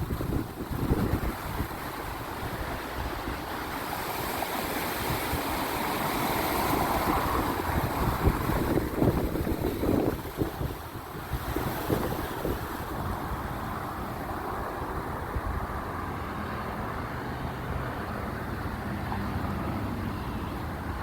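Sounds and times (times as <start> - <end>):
road and air noise: 0.0 - 21.0
vehicle engine hum: 5.5 - 21.0.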